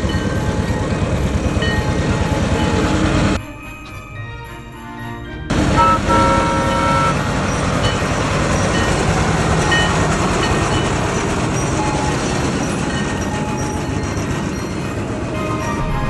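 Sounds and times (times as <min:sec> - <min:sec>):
tractor train rumbling: 0:00.0 - 0:04.1, 0:05.5 - 0:16.0
horn toot: 0:05.5 - 0:07.4.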